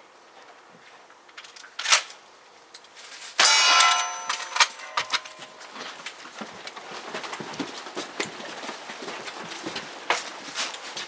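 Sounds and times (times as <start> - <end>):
steel target ringing clang: 3.4 - 5.9.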